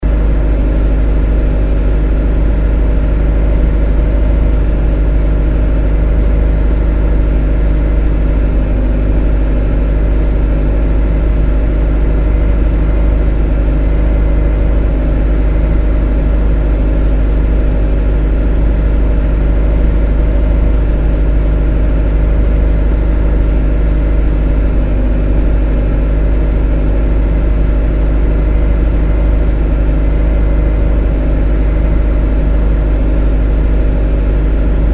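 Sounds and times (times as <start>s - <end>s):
motor droning steadily: 0.0s - 34.9s.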